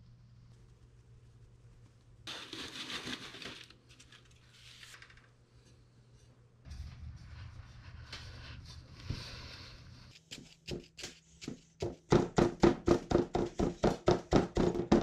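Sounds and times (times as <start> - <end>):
faint low hum: 0.0 - 10.8
rustling scraping noise: 2.3 - 5.2, 6.7 - 10.2.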